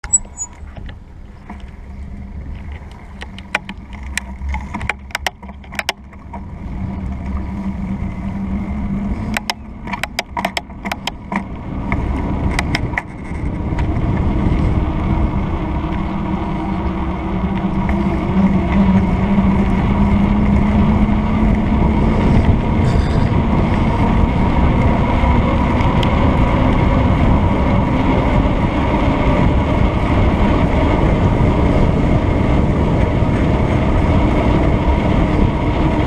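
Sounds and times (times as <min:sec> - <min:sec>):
bike rattling clicks: 0:00.0 - 0:01.8, 0:02.6 - 0:07.5, 0:09.2 - 0:14.8
bike tyre rumble: 0:00.0 - 0:36.0
wind buffeting microphone: 0:00.0 - 0:36.0.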